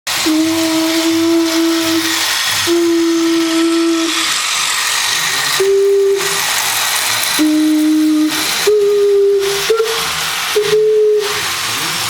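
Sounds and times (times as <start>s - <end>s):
locomotive horn blasts: 0.1s - 4.4s, 5.6s - 6.5s, 7.4s - 11.6s
steady hiss of air: 0.1s - 12.0s.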